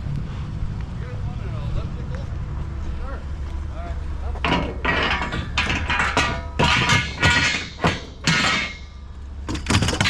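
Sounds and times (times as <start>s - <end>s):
metal frame parts clanking: 4.2s - 10.0s.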